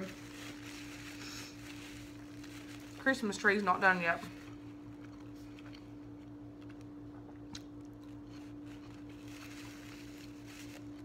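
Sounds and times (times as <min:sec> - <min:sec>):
steady low hum: 0:00.0 - 0:11.0
faint chewing: 0:04.4 - 0:11.0.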